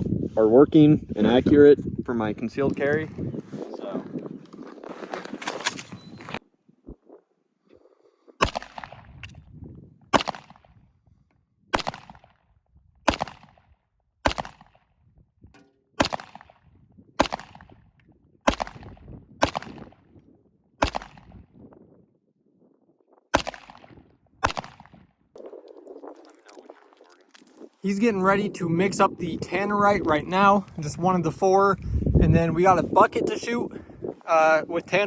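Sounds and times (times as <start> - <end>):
handgun shots with echo: 10.1 - 10.7, 14.2 - 14.8, 15.6 - 16.6, 17.2 - 17.8, 18.5 - 20.0, 23.3 - 25.0.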